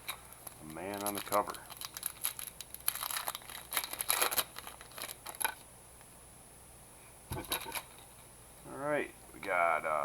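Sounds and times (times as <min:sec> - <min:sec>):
cards rustling and clicking: 0:00.0 - 0:05.6.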